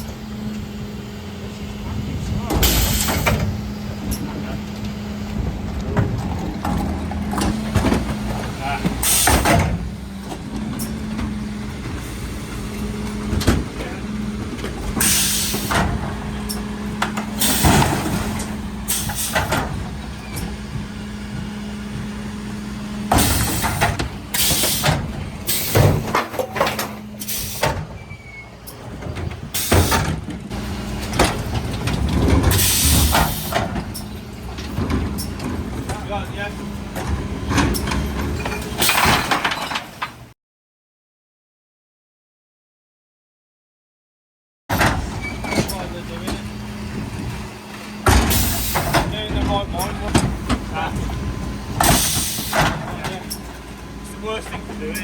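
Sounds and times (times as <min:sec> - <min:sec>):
refuse truck humming: 0:00.0 - 0:40.3, 0:44.7 - 0:55.0
hisses and clatters of bin lifter: 0:02.4 - 0:04.9, 0:05.8 - 0:11.4, 0:12.0 - 0:22.2, 0:23.1 - 0:36.2, 0:37.0 - 0:40.2, 0:47.4 - 0:55.0.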